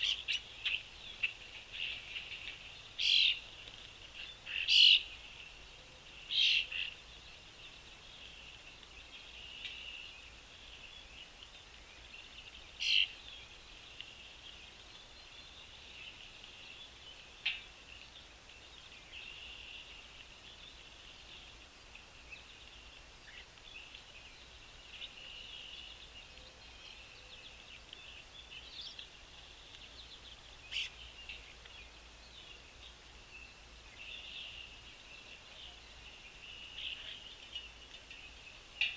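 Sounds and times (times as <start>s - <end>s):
sharp bird calls: 0.0s - 3.4s, 4.4s - 5.2s, 30.7s - 31.4s
small birds chirping: 0.0s - 38.9s.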